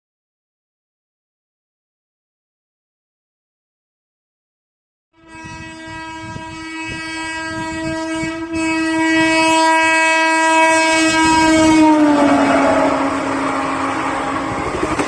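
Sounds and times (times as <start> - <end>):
train horn long note: 5.2 - 14.8
passing train rushing: 5.3 - 15.0.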